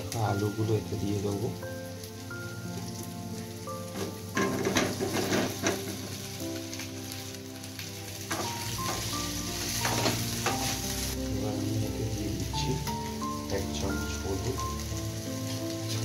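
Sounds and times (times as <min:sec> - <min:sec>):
background music: 0:00.0 - 0:16.0
oil sizzling: 0:00.0 - 0:16.0
potatoes knocking in pan: 0:03.9 - 0:06.3.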